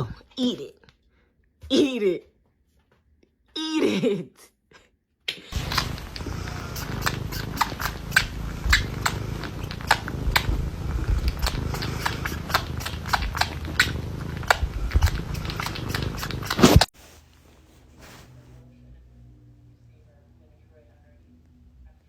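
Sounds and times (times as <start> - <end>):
animal chewing and crunching food: 5.5 - 18.6
low steady rumble: 5.6 - 22.0.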